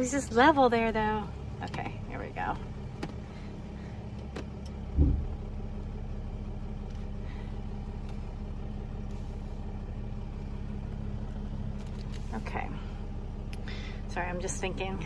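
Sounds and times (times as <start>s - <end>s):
vehicle engine running: 0.0s - 15.0s
loud low thump: 4.9s - 5.4s.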